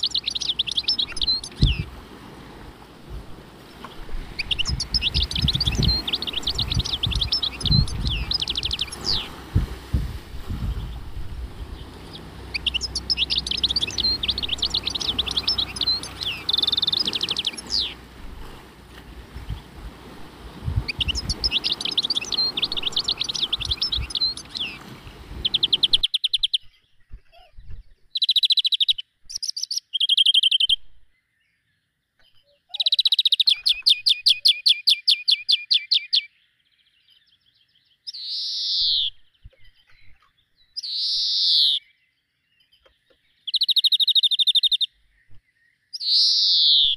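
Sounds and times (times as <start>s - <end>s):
bird sliding calls: 0.0s - 26.2s
background hiss: 0.0s - 26.3s
songbirds chirping and trilling: 0.0s - 46.9s.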